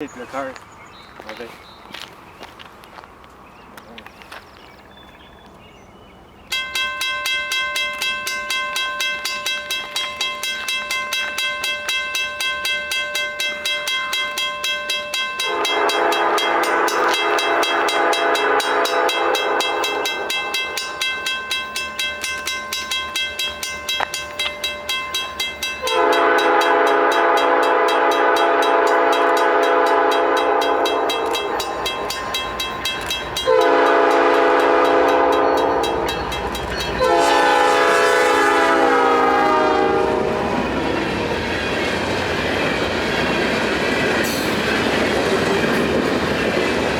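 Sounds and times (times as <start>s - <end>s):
crossing warning bell ringing: 6.4s - 46.9s
locomotive horn blasts: 15.4s - 20.1s, 25.8s - 31.8s, 33.4s - 41.4s.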